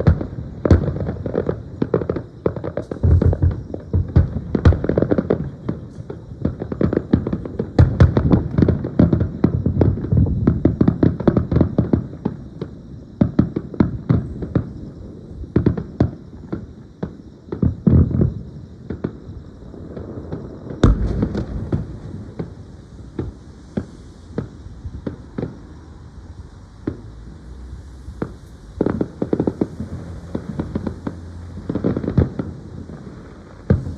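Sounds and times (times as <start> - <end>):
fireworks booming: 0.0 - 33.9
fireworks bursting and crackling: 0.0 - 33.9.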